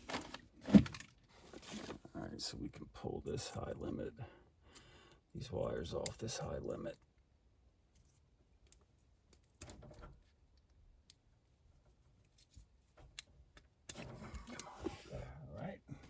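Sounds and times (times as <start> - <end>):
rustle of small parts handled: 0.0 - 2.1, 11.8 - 13.2
faint clicks of small parts: 4.7 - 6.4, 7.9 - 11.3, 12.1 - 14.9.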